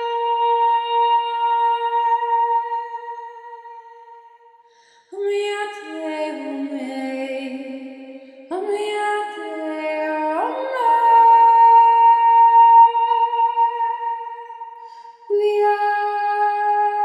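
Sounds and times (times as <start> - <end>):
woman singing held tones: 0.0 - 4.3, 8.5 - 17.0.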